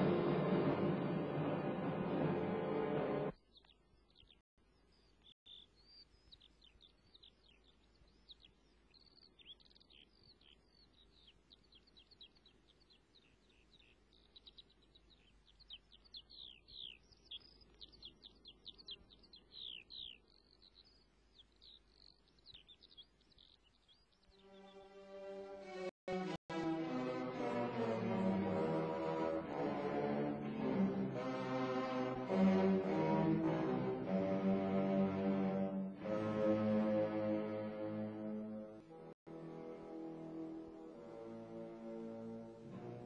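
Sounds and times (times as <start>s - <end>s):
orchestral music: 0.0s - 3.4s, 24.9s - 43.0s
high birdsong chirps: 0.0s - 25.3s
soft outdoor hiss: 3.4s - 25.1s.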